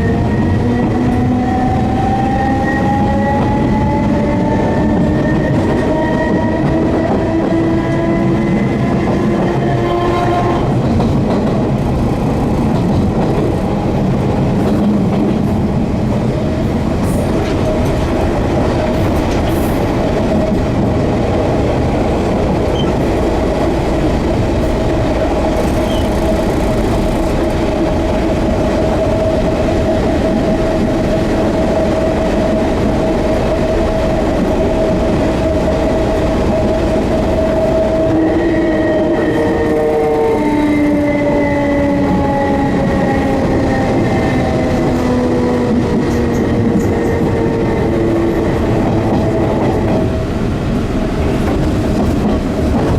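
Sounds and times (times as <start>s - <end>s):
train wheels rumbling on rail: 0.0s - 52.9s
electric train motor whine: 24.6s - 27.8s.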